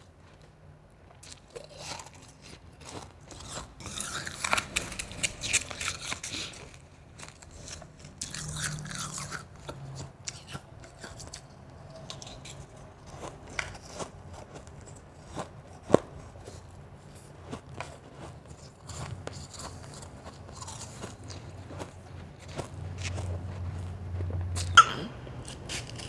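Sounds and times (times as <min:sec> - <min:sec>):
chewing crunchy ice: 0:01.1 - 0:26.0.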